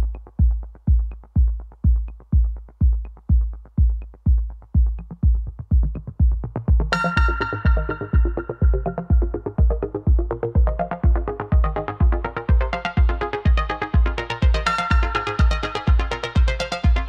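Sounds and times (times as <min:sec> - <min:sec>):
electronic dance music: 0:00.0 - 0:17.0
heavy kick drum: 0:00.0 - 0:17.0
bright synth chords: 0:06.8 - 0:17.0.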